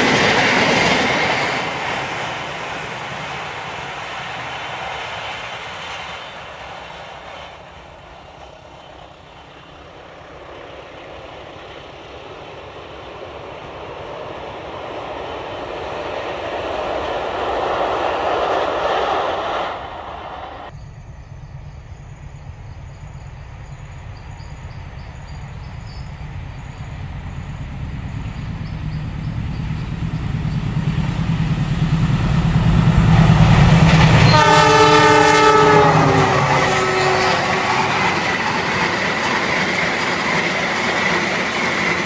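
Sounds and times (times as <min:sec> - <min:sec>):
rushing noise: 0:00.0 - 0:20.7, 0:26.1 - 0:42.0
diesel locomotive engine rumble: 0:00.0 - 0:42.0
train horn chord: 0:34.0 - 0:38.0.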